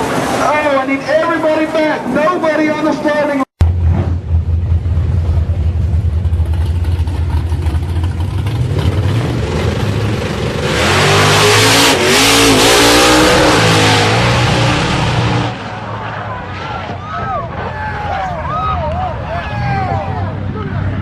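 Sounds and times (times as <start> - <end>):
wind and road rush: 0.0 - 21.0
car engine revving: 3.6 - 16.8.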